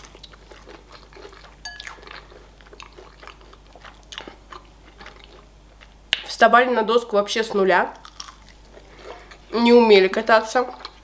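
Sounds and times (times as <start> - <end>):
crunchy chewing of fried chicken: 0.0 - 6.0, 8.0 - 9.5.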